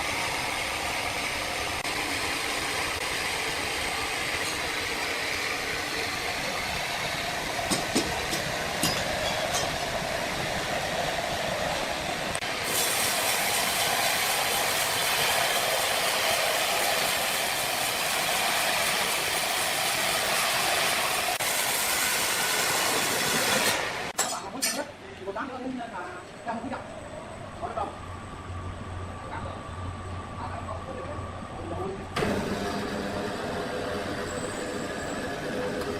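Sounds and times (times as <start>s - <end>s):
sawmill machinery din: 0.0s - 24.2s, 32.0s - 35.9s.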